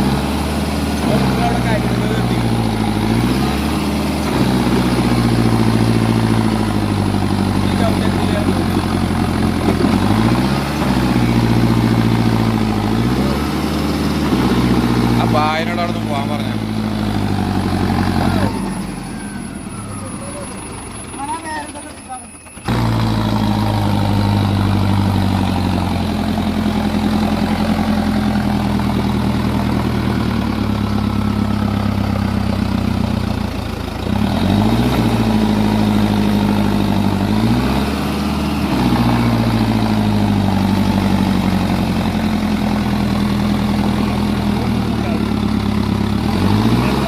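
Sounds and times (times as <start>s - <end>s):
tractor engine revving: 0.0s - 47.0s.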